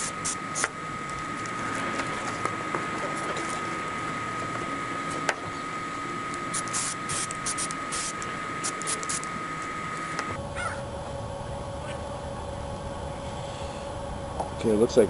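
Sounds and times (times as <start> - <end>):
adhesive spray hissing: 0.0 - 0.7, 6.5 - 9.3
short sharp spray hisses: 6.6 - 8.1.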